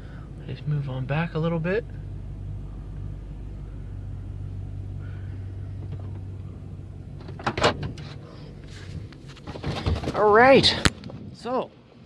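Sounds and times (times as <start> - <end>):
truck engine idling: 0.0 - 10.9
clatter of knocks: 9.3 - 10.2.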